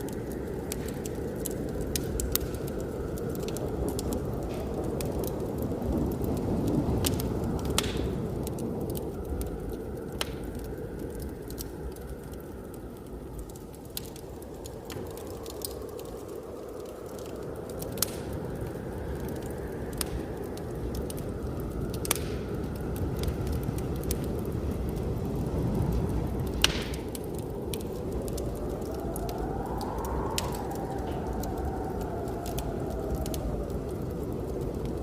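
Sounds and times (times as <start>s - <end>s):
blizzard wind whistling: 0.0s - 35.0s
wood fire crackling and popping: 0.0s - 35.0s.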